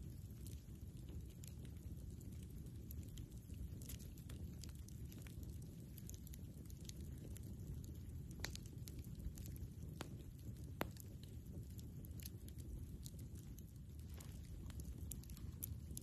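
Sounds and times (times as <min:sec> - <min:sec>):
campfire crackling: 0:00.0 - 0:16.0
steady low rumble: 0:05.8 - 0:16.0.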